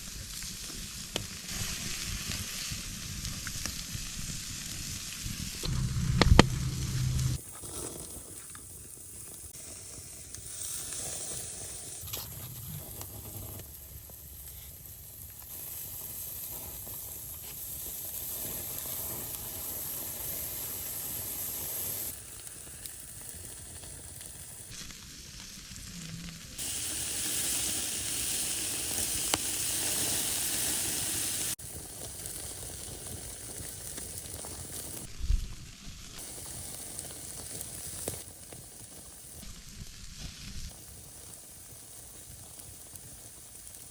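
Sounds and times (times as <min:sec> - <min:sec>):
food sizzling in a pan: 0:00.0 - 0:43.9.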